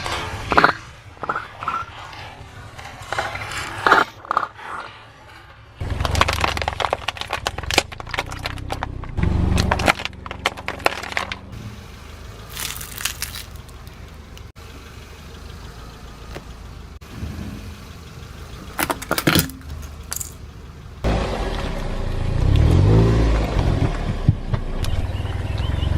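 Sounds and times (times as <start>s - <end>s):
car rumble: 0.0s - 25.9s
tyre crushing brittle objects: 5.8s - 11.5s, 12.5s - 14.0s.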